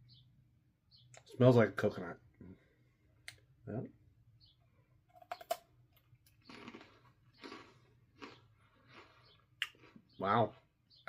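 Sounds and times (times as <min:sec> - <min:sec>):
crunchy chewing: 0:05.1 - 0:10.7.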